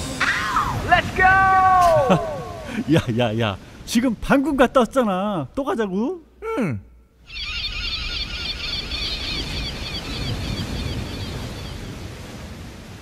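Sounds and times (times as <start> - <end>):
birds chirping: 6.9 - 12.4.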